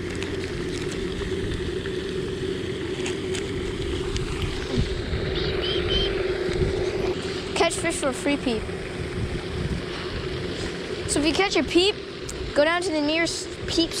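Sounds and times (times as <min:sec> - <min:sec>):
wind rumbling on microphone: 0:00.0 - 0:12.6
low hum: 0:00.0 - 0:14.0
high chirps: 0:05.3 - 0:06.3.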